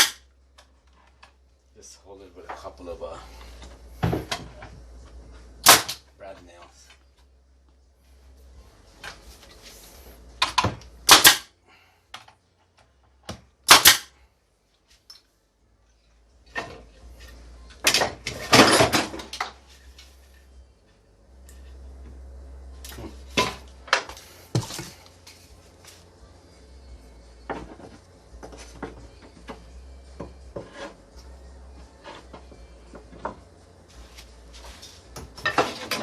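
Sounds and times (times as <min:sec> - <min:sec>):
brad nailer firing: 0:00.0 - 0:00.2, 0:05.6 - 0:06.0, 0:10.4 - 0:11.5, 0:13.6 - 0:14.1.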